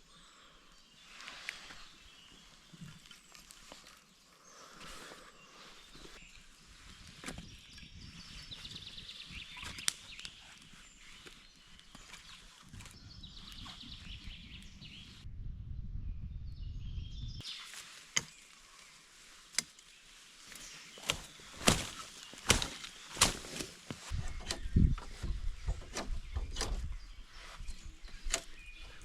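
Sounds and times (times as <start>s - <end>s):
outdoor ambience: 0.0s - 16.0s, 17.4s - 29.0s
sharp irregular knocks and cracks: 20.5s - 26.9s.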